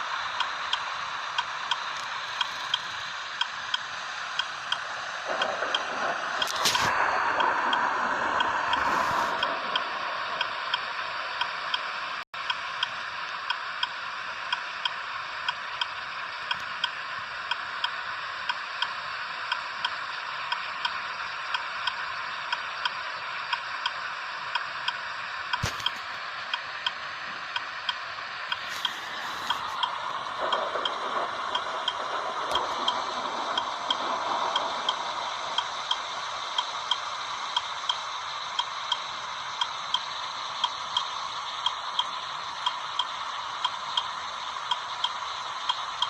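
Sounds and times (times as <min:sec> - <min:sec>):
continuous hiss: 0:00.0 - 0:46.0
steady ticking: 0:00.0 - 0:46.0
sharp click: 0:05.4 - 0:07.0, 0:25.5 - 0:26.2.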